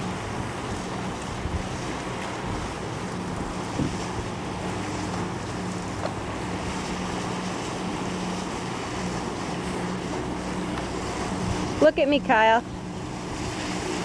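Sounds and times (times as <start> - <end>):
water washing around boat: 0.0 - 14.0
wind buffeting microphone: 0.0 - 14.0
light knocks: 6.0 - 6.2.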